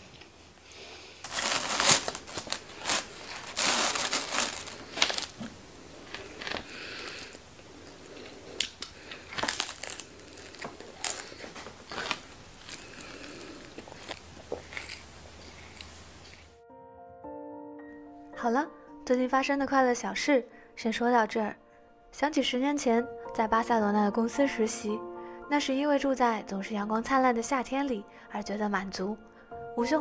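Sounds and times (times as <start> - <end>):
food packaging crinkling: 1.2 - 16.6.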